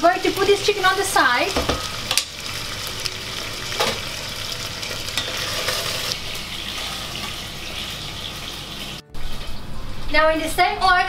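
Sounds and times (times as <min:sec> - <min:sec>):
chicken sizzling in hot oil: 0:00.0 - 0:09.4.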